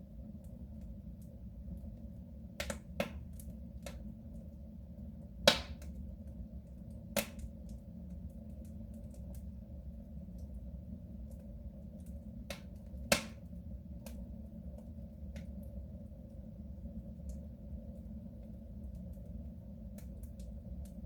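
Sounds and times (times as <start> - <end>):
low rumble of stove: 0.0 - 21.0
wood fire crackling: 0.2 - 21.0
sharp pops of fire: 2.6 - 4.0, 5.4 - 6.0, 7.2 - 7.5, 12.5 - 13.4.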